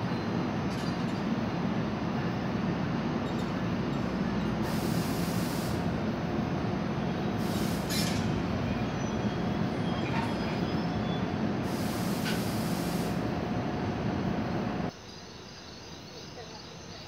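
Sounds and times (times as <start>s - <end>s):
train hum and rumble: 0.0s - 15.1s
short hisses: 4.6s - 5.9s, 7.4s - 8.3s, 11.6s - 13.2s.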